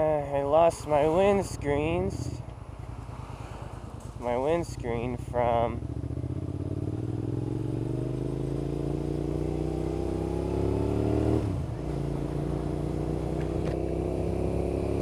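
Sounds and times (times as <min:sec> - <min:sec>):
motorcycle engine revving: 0:04.0 - 0:15.0.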